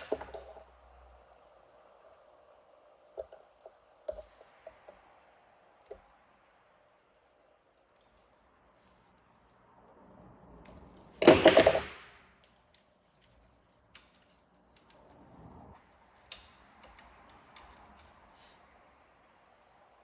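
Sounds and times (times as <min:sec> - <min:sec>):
light clicks and taps: 0:12.4 - 0:18.8.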